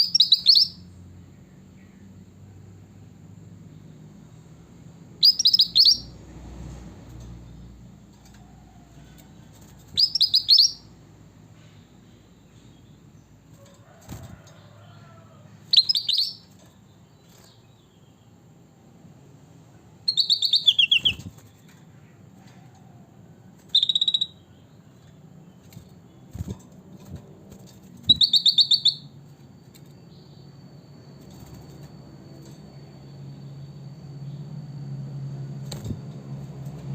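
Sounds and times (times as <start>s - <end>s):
bulbul singing: 0.0s - 2.0s, 5.1s - 6.2s, 9.8s - 11.0s, 15.6s - 18.4s, 20.0s - 22.2s, 23.6s - 36.6s.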